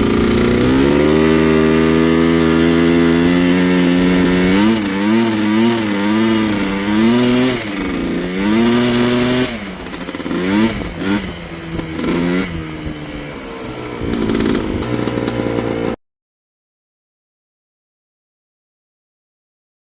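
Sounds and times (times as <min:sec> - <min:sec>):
two-stroke engine revving: 0:00.0 - 0:16.0.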